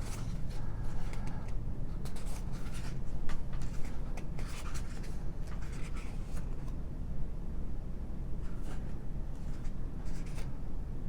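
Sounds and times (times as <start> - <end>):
paper pages turning: 0.0 - 3.0, 3.6 - 6.7.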